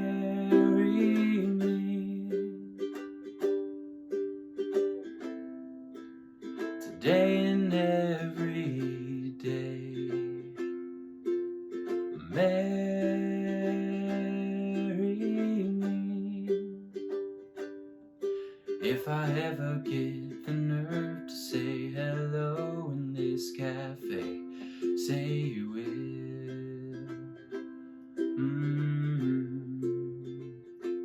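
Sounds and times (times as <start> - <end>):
man singing: 0.0 - 2.6, 6.8 - 10.6, 12.2 - 16.8, 18.8 - 30.8
ukulele strumming: 0.0 - 31.0.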